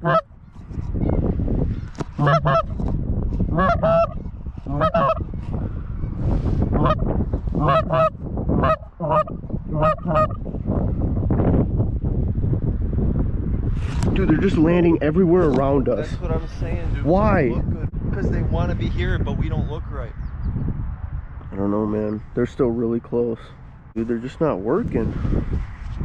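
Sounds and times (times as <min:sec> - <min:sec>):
goose honking: 0:00.0 - 0:00.3, 0:02.2 - 0:02.8, 0:03.5 - 0:05.2, 0:06.8 - 0:10.4.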